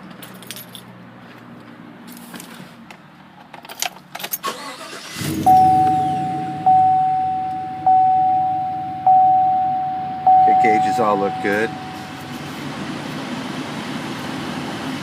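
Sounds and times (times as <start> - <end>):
car engine starting and idling: 4.2 - 15.0
dashboard warning chime: 5.2 - 12.7.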